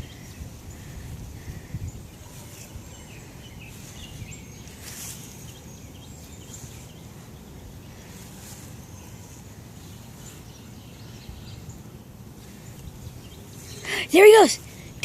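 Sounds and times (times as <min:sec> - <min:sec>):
wind rumble on microphone: 0:00.0 - 0:08.6
faint bird chirps: 0:00.0 - 0:15.0.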